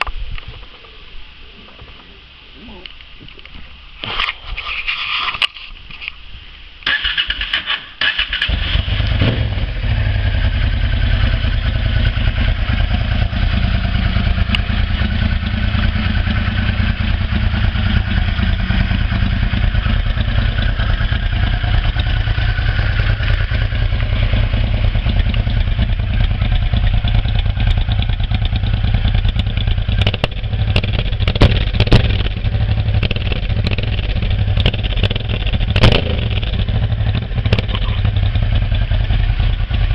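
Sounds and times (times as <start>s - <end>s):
exhaust cracks: 6.8s - 39.9s
motorcycle engine running: 8.4s - 39.9s.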